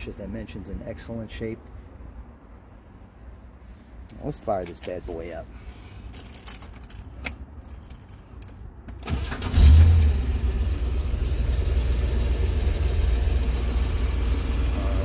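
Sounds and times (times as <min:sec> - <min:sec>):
car engine starting and idling: 0:05.9 - 0:15.0.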